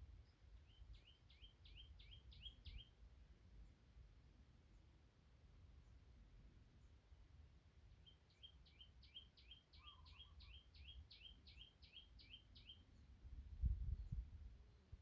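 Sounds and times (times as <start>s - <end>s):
small bird chirping: 0.2s - 3.0s, 8.0s - 13.1s.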